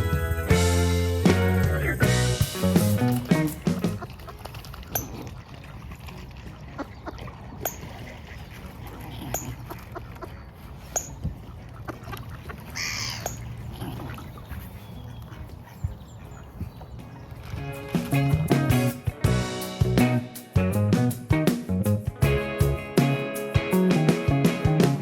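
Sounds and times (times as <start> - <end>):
waterfowl calling: 1.3 - 19.7.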